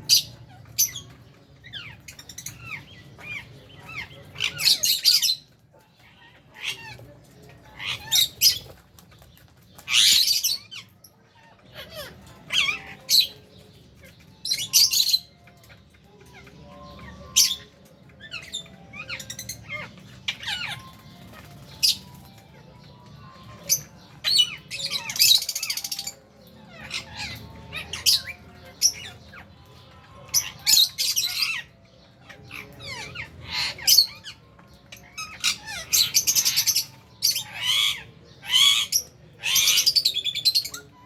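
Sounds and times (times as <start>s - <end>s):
lovebirds chirping and squawking: 0.0s - 41.0s
quiet bird chatter: 0.0s - 41.0s.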